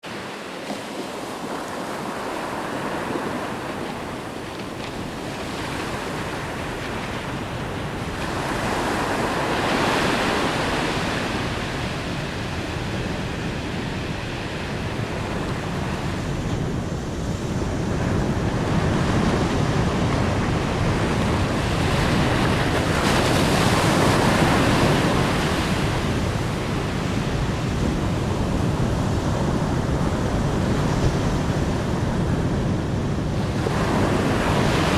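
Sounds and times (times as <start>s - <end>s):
ocean waves washing in: 0.0s - 34.9s.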